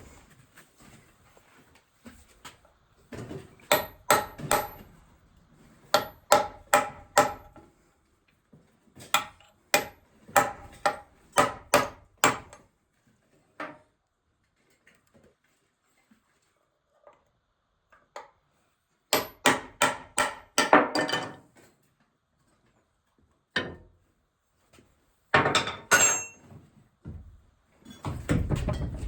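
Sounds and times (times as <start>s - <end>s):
hammer striking metal: 3.7s - 4.9s, 6.0s - 7.5s, 25.7s - 26.4s.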